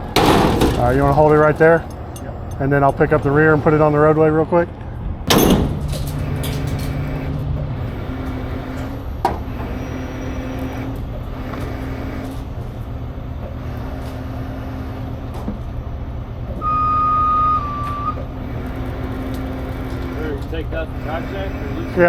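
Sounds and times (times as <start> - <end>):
diesel engine running: 0.0 - 22.0
high steady tone: 16.6 - 18.6.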